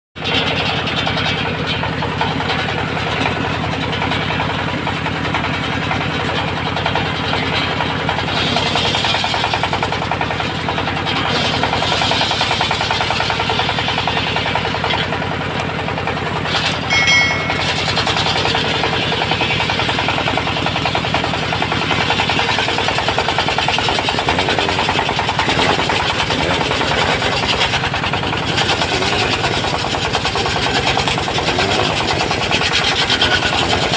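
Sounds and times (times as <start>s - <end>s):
sawmill engine pulsing: 0.2s - 33.9s
saw blade cutting wood: 16.4s - 33.9s.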